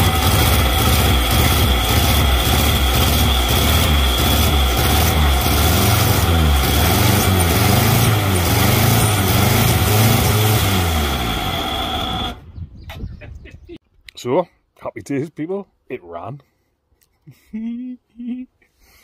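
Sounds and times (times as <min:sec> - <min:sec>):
car engine revving unevenly: 0:00.0 - 0:12.4
high whine: 0:00.0 - 0:12.5.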